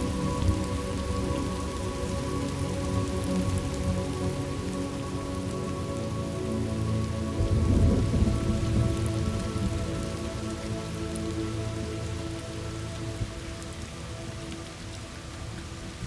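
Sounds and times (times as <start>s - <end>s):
steady rain: 0.0s - 16.0s
low rumble of thunder: 7.4s - 10.1s.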